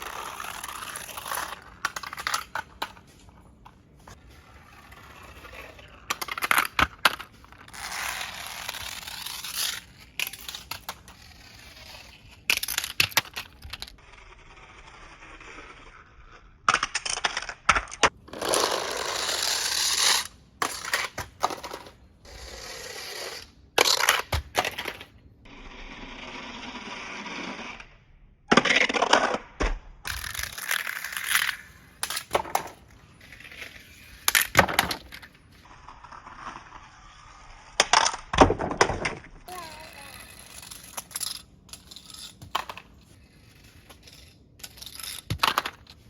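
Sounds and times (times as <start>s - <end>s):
toy cars rolling rattle: 0.0s - 3.2s, 4.1s - 16.0s, 18.3s - 25.1s, 30.1s - 38.2s, 39.5s - 46.0s
toy cars clacking and clattering: 0.0s - 15.9s, 30.0s - 46.0s.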